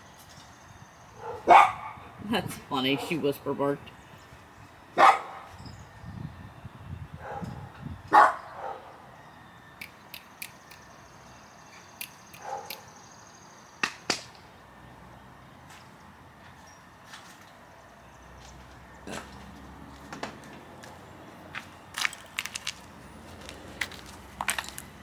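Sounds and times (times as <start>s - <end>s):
dog barking softly: 1.2s - 2.0s, 5.0s - 5.5s, 8.2s - 8.9s, 12.4s - 12.8s
sharp clicks and taps: 9.8s - 10.8s, 12.0s - 12.8s.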